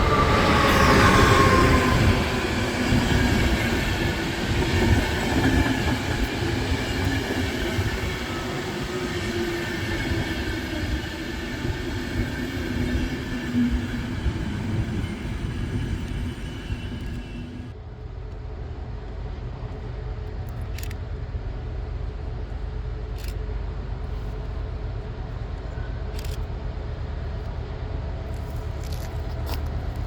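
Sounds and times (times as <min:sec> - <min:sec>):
train drive whining: 0:00.0 - 0:30.0.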